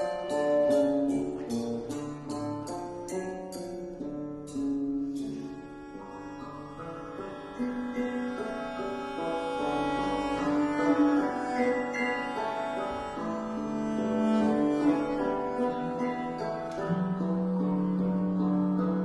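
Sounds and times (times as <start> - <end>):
percussion: 0.0 - 5.7
viola da gamba: 4.6 - 19.0.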